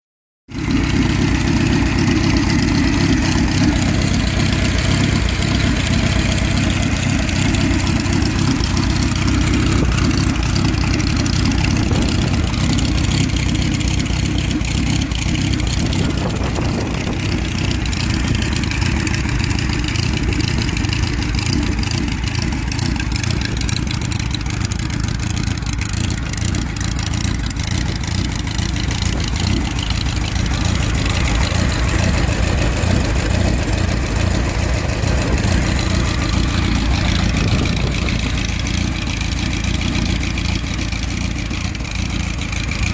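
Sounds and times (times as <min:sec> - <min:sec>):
motorcycle engine idling: 0:00.5 - 0:42.9.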